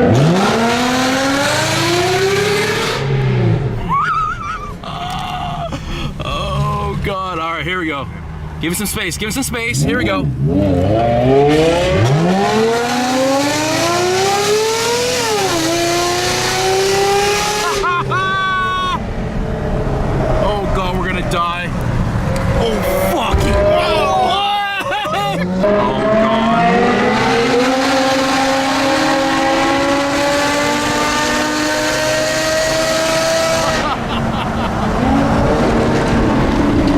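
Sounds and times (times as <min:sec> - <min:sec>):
car engine accelerating hard: 0:00.0 - 0:04.0, 0:09.5 - 0:18.3, 0:25.2 - 0:36.9.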